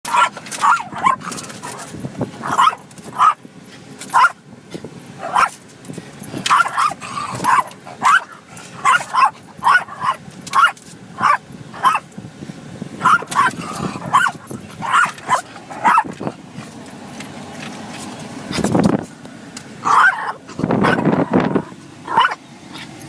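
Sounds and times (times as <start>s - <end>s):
dog barking and yipping: 0.1s - 3.4s, 4.1s - 4.4s, 5.2s - 5.6s, 6.4s - 12.1s, 13.0s - 16.3s, 19.8s - 23.0s.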